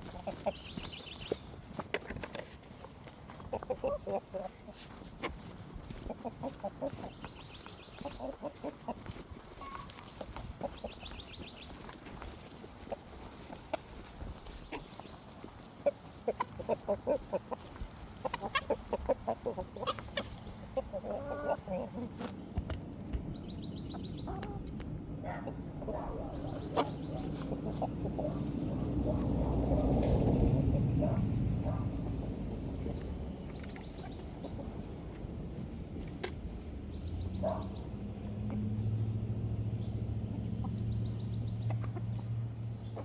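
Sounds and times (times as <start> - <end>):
chickens clucking: 0.0 - 43.0.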